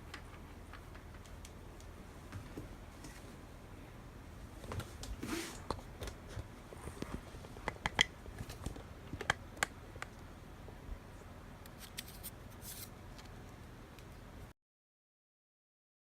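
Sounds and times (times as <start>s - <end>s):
scratchy rustles: 11.8s - 12.9s.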